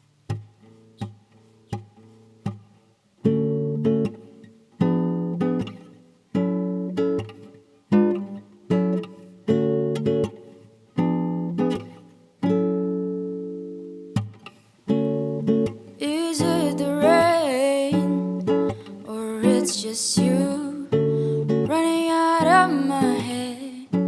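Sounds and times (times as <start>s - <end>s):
acoustic guitar strumming: 0.3s - 24.0s
person singing: 16.0s - 24.0s.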